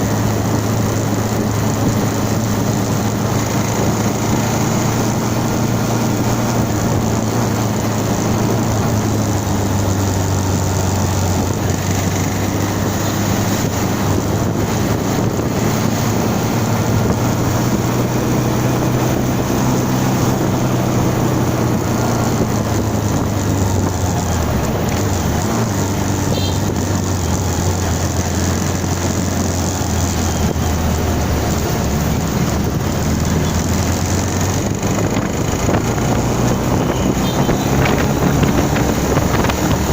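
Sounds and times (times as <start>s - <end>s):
motorcycle engine cruising: 0.0s - 39.9s
wind rushing: 34.0s - 39.9s.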